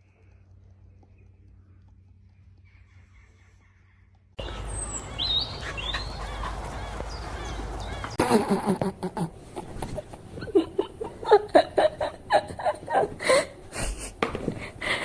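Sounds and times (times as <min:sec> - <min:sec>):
person laughing: 0:08.2 - 0:15.0.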